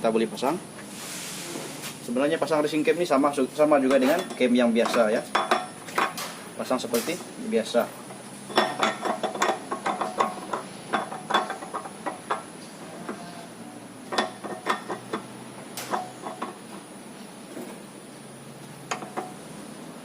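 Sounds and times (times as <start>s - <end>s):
metal tools clicking and knocking: 3.8s - 13.2s, 14.1s - 16.9s, 18.8s - 19.4s.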